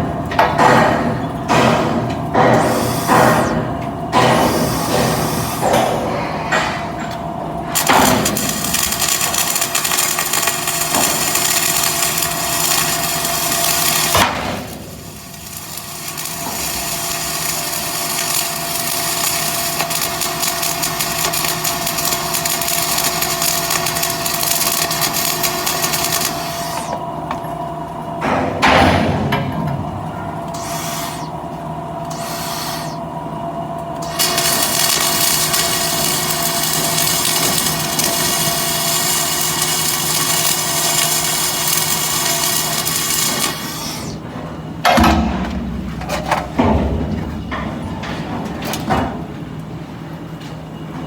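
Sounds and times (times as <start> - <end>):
welding arc crackling and sizzling: 2.3 - 5.9, 7.7 - 27.3, 30.5 - 33.2, 33.8 - 44.2.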